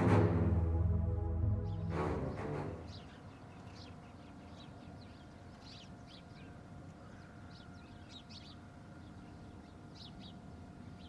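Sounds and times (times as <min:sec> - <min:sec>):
small birds chirping: 0:02.9 - 0:11.0.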